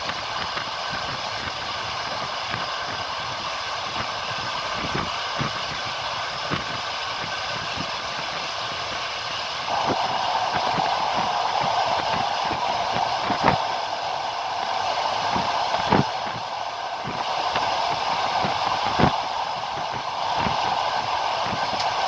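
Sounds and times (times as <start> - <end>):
train running rumble: 0.0 - 22.0
steady hum: 9.4 - 22.0.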